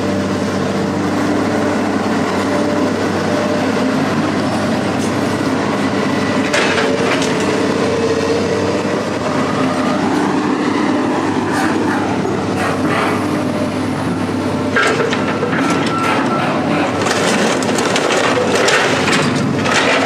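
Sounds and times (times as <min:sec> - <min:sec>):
heavy machine engine running: 0:00.0 - 0:20.0
scrap metal scraping and clanking: 0:14.7 - 0:20.0
metal on metal squeal: 0:15.4 - 0:16.7.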